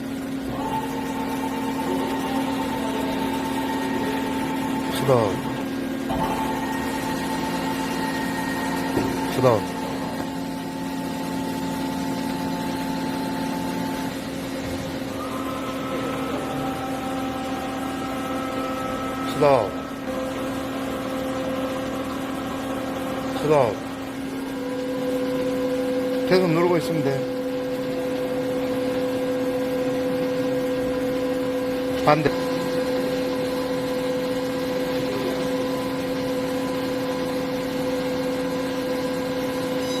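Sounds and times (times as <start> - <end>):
boring mill humming: 0.0 - 40.0
drive whine: 0.0 - 40.0
higher whine: 0.4 - 28.3.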